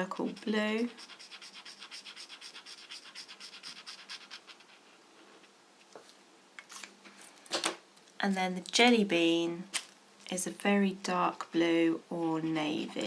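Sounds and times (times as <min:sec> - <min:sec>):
pen scribbling on paper: 0:00.0 - 0:05.0.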